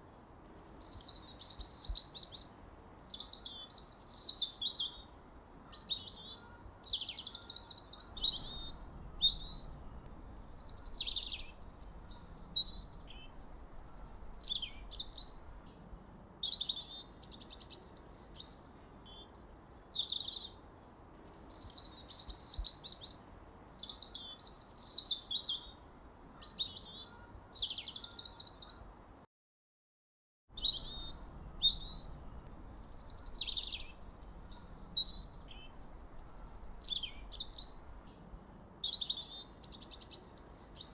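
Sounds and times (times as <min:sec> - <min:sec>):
faint low background hiss: 0:00.0 - 0:29.3, 0:30.6 - 0:40.9
songbirds chirping and singing: 0:05.7 - 0:18.6, 0:30.6 - 0:40.9.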